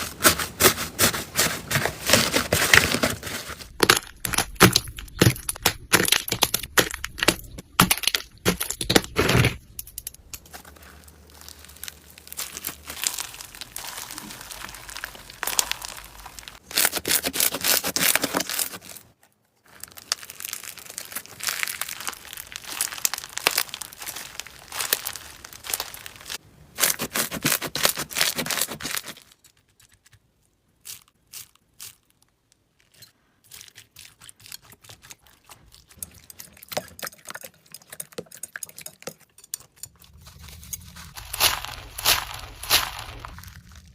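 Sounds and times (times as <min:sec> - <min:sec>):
crunchy slime crackling and popping: 0:03.6 - 0:09.6, 0:10.2 - 0:29.6, 0:40.0 - 0:43.9.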